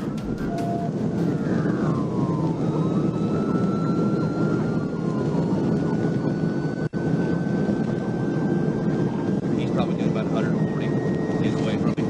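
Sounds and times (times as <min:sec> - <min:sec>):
car engine at high speed: 0:00.0 - 0:03.0
police siren: 0:00.0 - 0:12.0
wind noise: 0:00.0 - 0:12.0.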